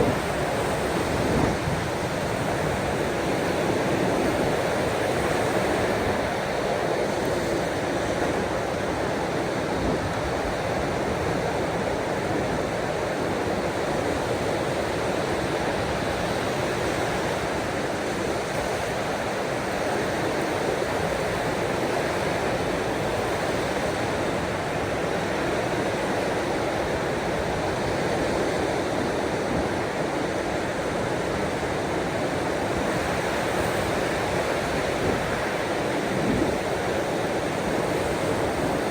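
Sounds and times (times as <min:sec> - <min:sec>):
ocean waves washing ashore: 0:00.0 - 0:38.9.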